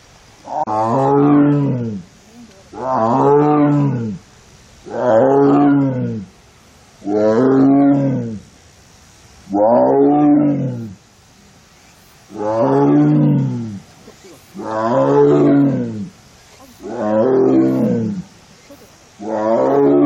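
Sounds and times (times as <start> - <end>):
tiger moaning roars: 9.5 - 11.0, 12.3 - 13.8, 14.5 - 20.0.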